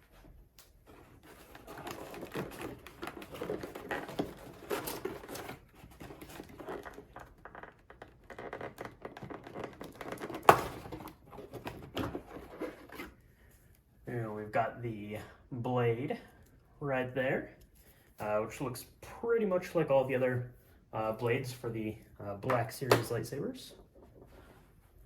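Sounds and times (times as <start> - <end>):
packaging crinkling and rustling: 1.0 - 13.2.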